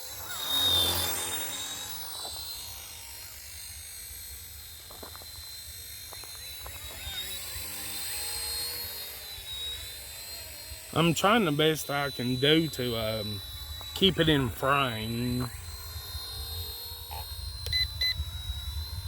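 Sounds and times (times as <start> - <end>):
rc helicopter whine: 0.0 - 19.0
wind rumble on microphone: 15.5 - 19.0.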